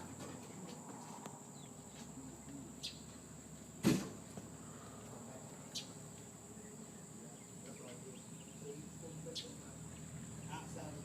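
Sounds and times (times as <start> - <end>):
sharp knock: 3.8 - 4.2.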